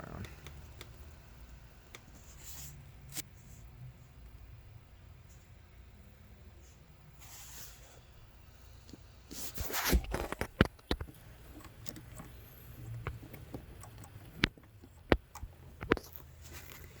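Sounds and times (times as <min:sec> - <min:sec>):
rustling scrape: 0:06.6 - 0:08.0, 0:09.3 - 0:10.6
sharp clicks and knocks: 0:10.0 - 0:16.3.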